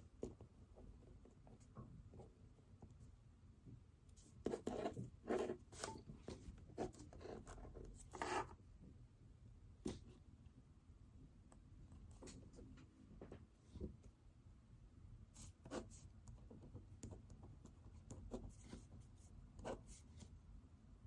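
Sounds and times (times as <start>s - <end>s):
pen writing on paper: 4.4s - 6.0s, 6.8s - 8.6s.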